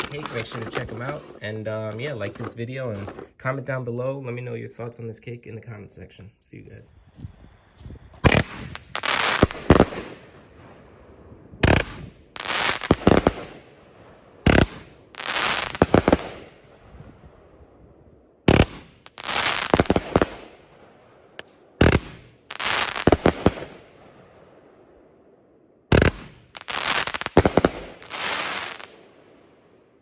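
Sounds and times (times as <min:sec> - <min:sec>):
firework bangs: 0:00.0 - 0:03.2, 0:08.2 - 0:17.5, 0:18.4 - 0:24.8, 0:25.9 - 0:29.4
firework burst: 0:08.2 - 0:10.8, 0:11.6 - 0:13.7, 0:14.4 - 0:17.0, 0:18.5 - 0:20.7, 0:21.8 - 0:24.2, 0:25.9 - 0:29.2.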